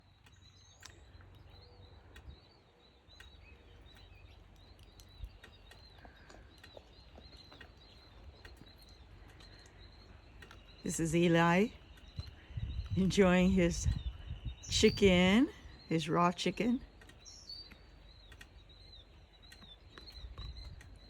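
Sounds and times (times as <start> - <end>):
faint bird chirps: 0.0 - 21.0
soft clicks: 3.1 - 11.3, 16.9 - 21.0.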